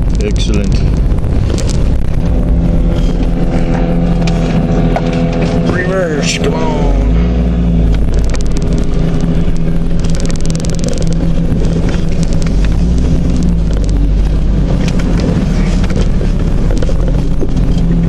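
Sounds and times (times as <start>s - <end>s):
car engine running: 0.0s - 18.0s
fine crackling: 7.1s - 18.0s.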